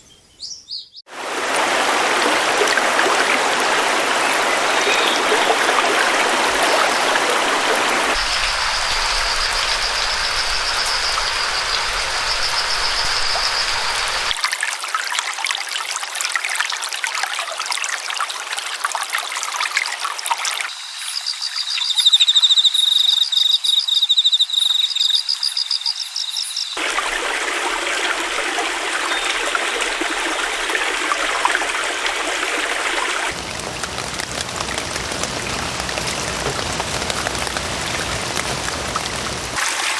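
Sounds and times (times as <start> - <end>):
stream water running: 1.1 - 39.9
high rapid trilling calls: 8.2 - 14.4, 20.7 - 26.8.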